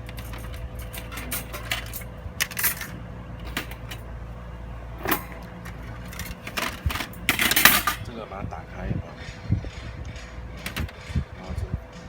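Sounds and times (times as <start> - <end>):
metal parts clinking and rattling: 0.0 - 4.1, 4.9 - 8.1, 9.2 - 11.5
steady low hum: 0.0 - 12.0.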